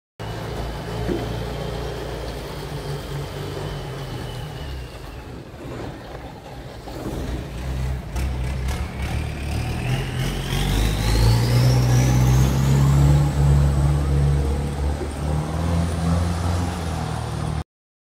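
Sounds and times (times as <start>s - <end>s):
engine drone with rising whine: 0.2s - 17.6s.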